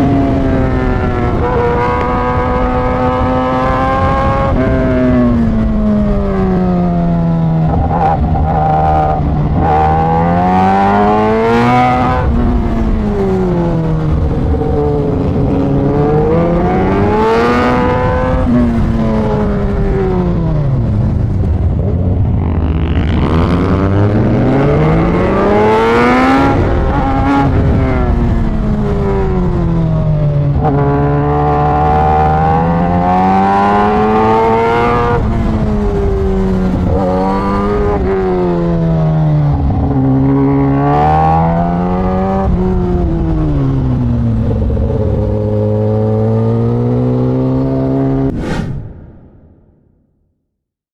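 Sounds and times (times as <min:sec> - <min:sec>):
motorcycle engine revving hard: 0:07.6 - 0:29.7, 0:30.5 - 0:48.3.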